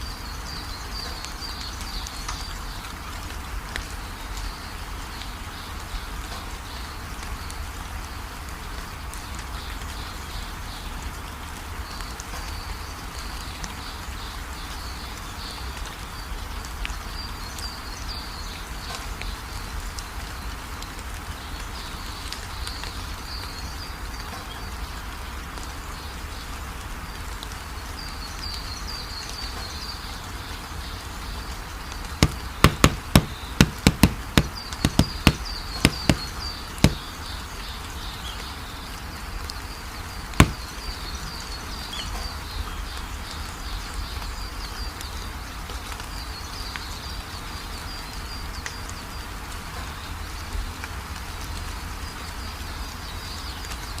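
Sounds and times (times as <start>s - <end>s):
background hiss: 0.0s - 45.6s
sharp knocks: 32.2s - 37.1s, 40.4s - 40.7s.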